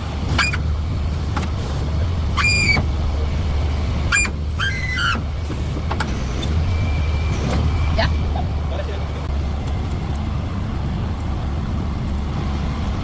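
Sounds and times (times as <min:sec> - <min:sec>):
truck engine running: 0:00.0 - 0:13.0
high-pitched squeaks: 0:00.3 - 0:00.7.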